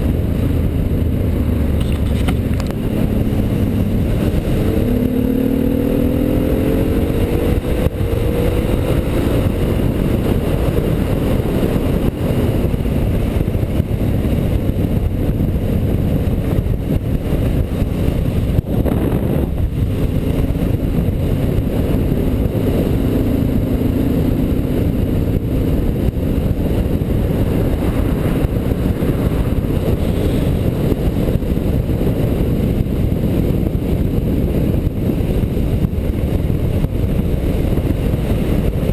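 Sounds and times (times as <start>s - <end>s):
heavy wind rush: 0.0s - 38.9s
motorcycle engine accelerating: 0.0s - 38.9s.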